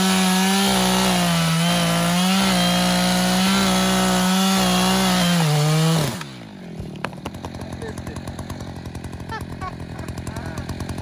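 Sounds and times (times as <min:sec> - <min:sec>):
chainsaw cutting tree trunk: 0:00.0 - 0:11.0.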